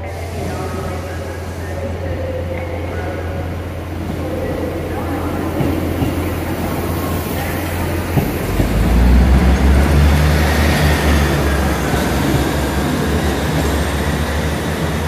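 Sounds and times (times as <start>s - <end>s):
train engine drone: 0.0s - 15.0s
train rumble and rail noise: 0.0s - 15.0s.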